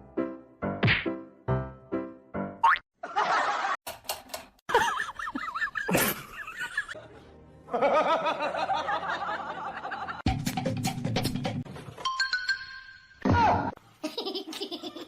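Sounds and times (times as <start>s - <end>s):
background music: 0.0s - 2.6s, 4.8s - 13.7s
people laughing: 3.0s - 3.8s, 4.7s - 10.2s, 14.0s - 15.0s.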